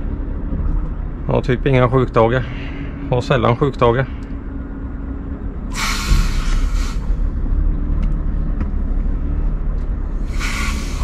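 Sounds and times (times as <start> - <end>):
truck engine rumble inside cab: 0.0 - 11.0
brief hissing: 5.7 - 7.2, 10.2 - 11.0.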